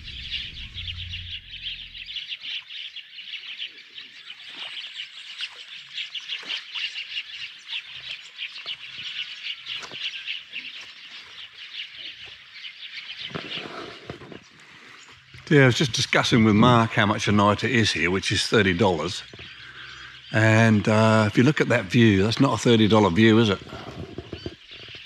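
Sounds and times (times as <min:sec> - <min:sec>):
rapid high bird chirps: 0:00.0 - 0:15.4
short lower bird calls: 0:00.0 - 0:15.4.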